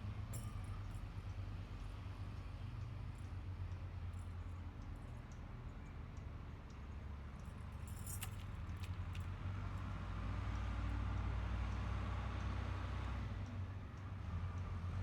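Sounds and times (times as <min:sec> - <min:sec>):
metallic jingling: 0:00.4 - 0:00.7, 0:07.8 - 0:08.4.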